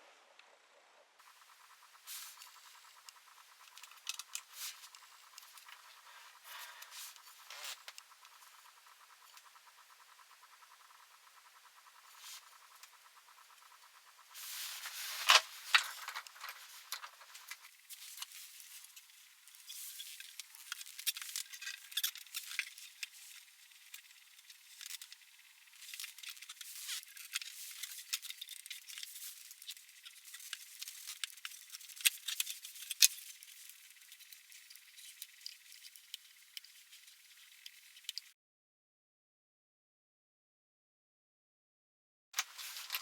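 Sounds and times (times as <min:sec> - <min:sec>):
metal parts and tools rattling: 0:14.8 - 0:18.8.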